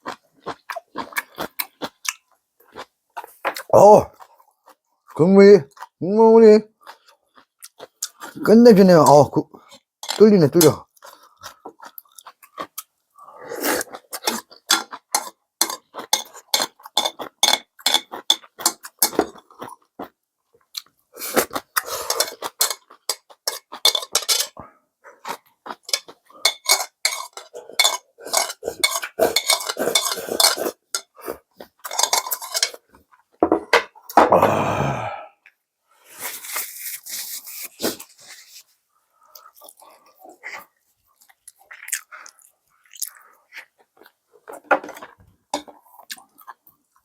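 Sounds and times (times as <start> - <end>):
utensils clinking against a dish: 10.0 - 10.8, 14.2 - 19.4, 21.9 - 24.6, 25.8 - 31.2, 31.8 - 32.8.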